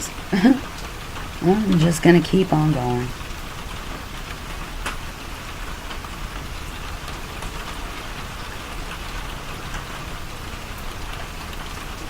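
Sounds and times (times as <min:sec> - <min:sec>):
heavy rain pattering: 0:00.0 - 0:12.0.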